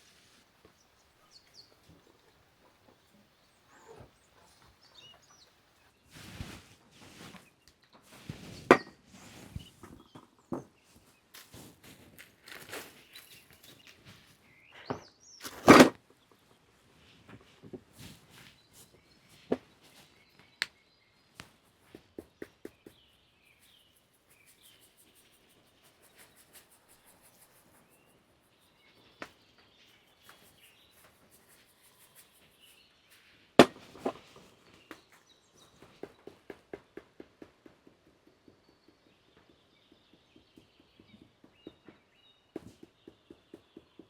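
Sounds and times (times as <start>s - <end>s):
knocks and taps: 21.4s - 23.0s, 35.8s - 44.0s.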